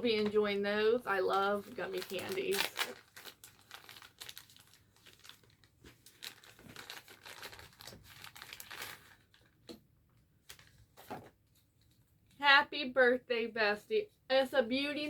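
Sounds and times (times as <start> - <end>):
gift wrapping crinkling and tearing: 1.1 - 9.7, 10.4 - 11.0.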